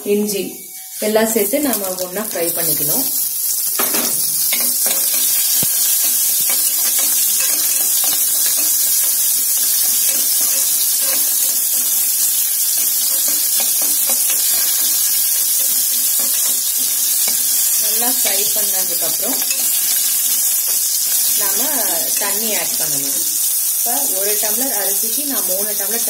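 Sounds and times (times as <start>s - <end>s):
spices sizzling in hot oil: 0.1s - 26.0s
spoon scraping pan: 4.4s - 22.5s.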